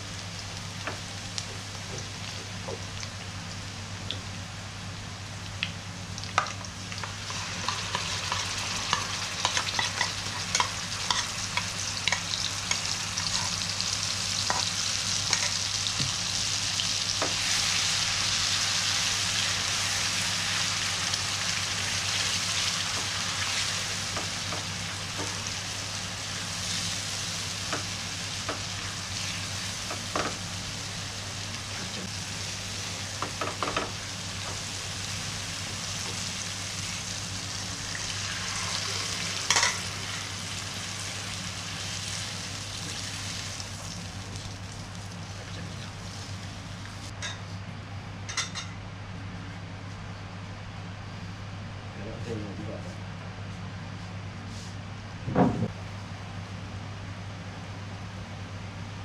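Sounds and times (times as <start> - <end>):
food sizzling in hot oil: 0.0 - 45.3
steady low hum: 0.0 - 59.0.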